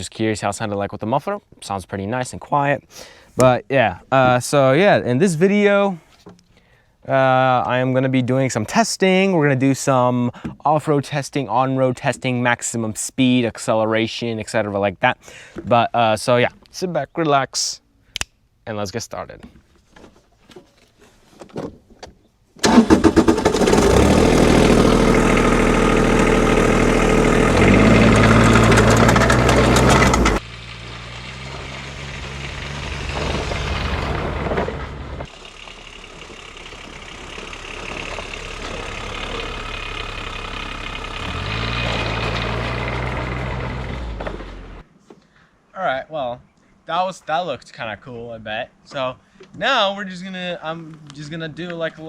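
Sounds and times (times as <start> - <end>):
small diesel engine revving: 22.6 - 44.8.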